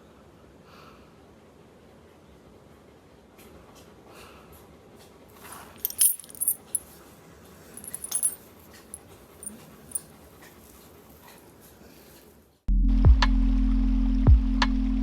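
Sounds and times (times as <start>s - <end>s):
collar tags jingling: 5.4s - 6.9s, 7.8s - 10.2s.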